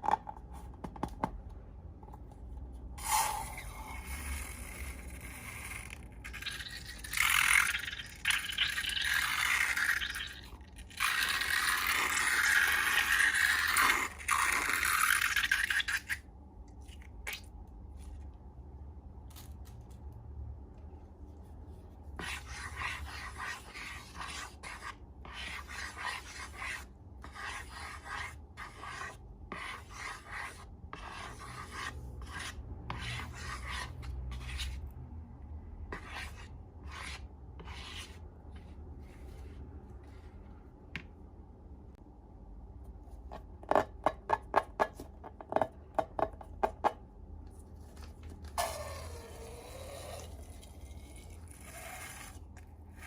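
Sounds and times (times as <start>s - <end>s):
scraping and rubbing strokes: 35.9s - 40.6s.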